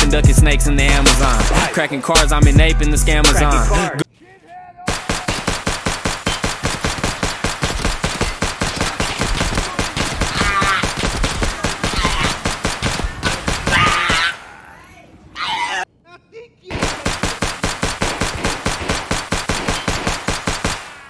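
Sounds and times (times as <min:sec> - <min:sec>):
rapid automatic gunfire: 0:00.9 - 0:02.7, 0:04.9 - 0:14.5, 0:16.7 - 0:21.0.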